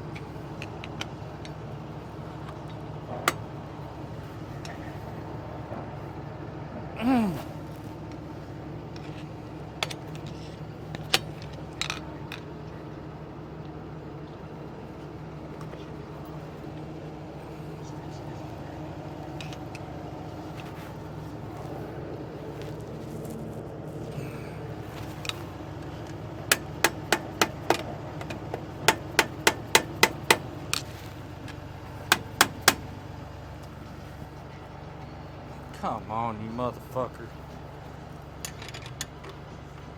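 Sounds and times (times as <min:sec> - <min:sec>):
vehicle engine droning: 0:00.0 - 0:39.9
sharp clicks and knocks: 0:26.0 - 0:33.0
hand hammer striking: 0:26.5 - 0:30.9, 0:32.0 - 0:32.9.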